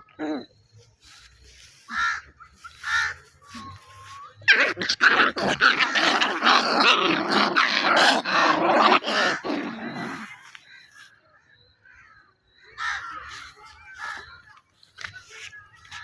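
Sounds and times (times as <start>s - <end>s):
puppies growling and snarling: 4.5s - 10.5s.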